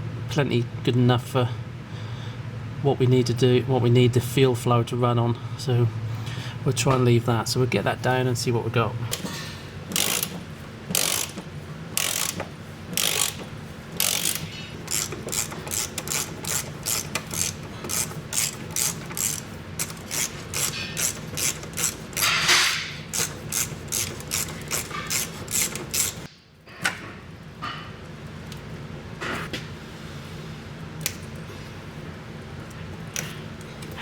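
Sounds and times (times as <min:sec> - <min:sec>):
ratchet rasp: 0:09.9 - 0:11.4, 0:12.0 - 0:26.3
ratchet wrench clicking: 0:09.9 - 0:26.3.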